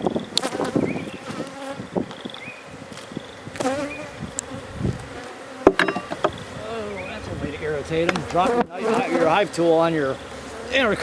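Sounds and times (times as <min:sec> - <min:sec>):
honey bees buzzing: 0:00.0 - 0:11.0
light clicks of hive parts: 0:08.0 - 0:09.0.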